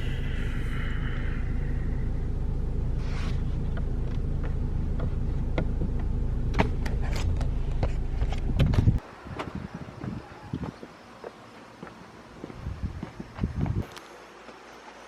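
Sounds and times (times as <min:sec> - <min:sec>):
car engine idling: 0:00.0 - 0:09.1.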